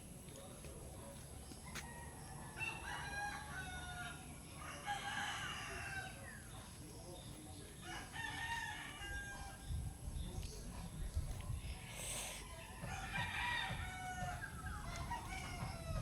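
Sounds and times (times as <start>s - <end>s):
rooster crowing: 1.8s - 6.2s, 12.8s - 16.0s.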